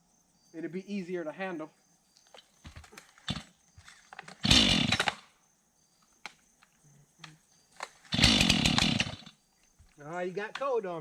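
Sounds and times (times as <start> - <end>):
chainsaw firing and dying: 3.3 - 3.5, 4.4 - 5.2, 8.1 - 9.4
chainsaw being pull-started: 4.3 - 5.2, 8.1 - 9.3.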